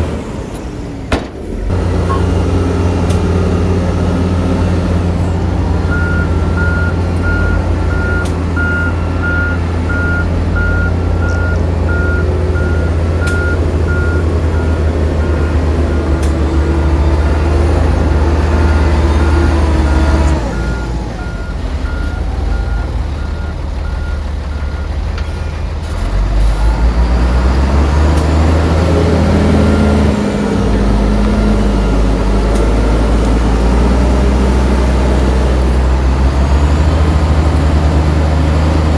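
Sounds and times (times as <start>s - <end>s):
heavy diesel machinery running: 0.0s - 38.9s
reversing alarm beeping: 5.3s - 25.0s, 28.4s - 34.4s.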